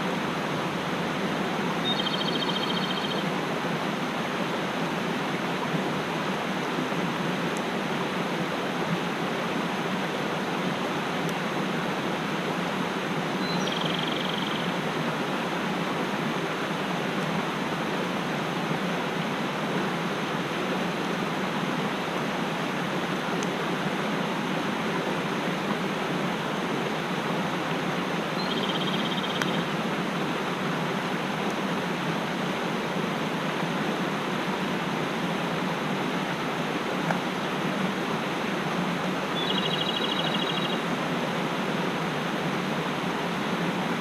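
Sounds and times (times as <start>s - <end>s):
mountain stream rushing: 0.0s - 44.0s
short high bird call: 39.4s - 40.8s.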